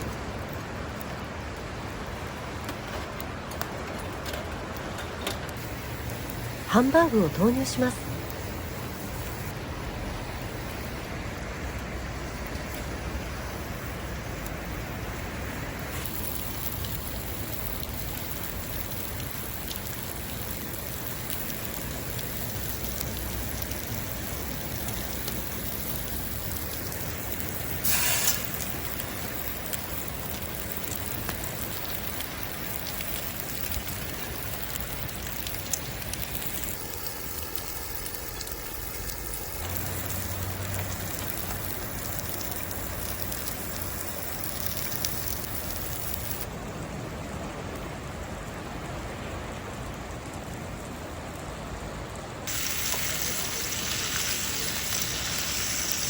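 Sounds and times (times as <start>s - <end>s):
patties sizzling over fire: 0.0s - 46.5s, 52.1s - 56.0s.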